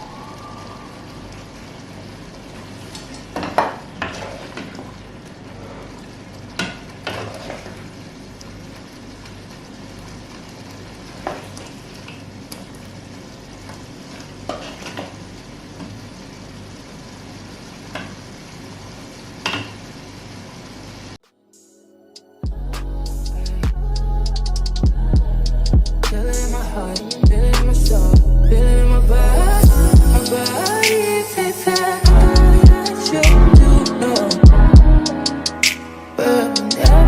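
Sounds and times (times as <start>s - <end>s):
food sizzling in a pan: 0.0s - 21.2s, 30.2s - 32.2s.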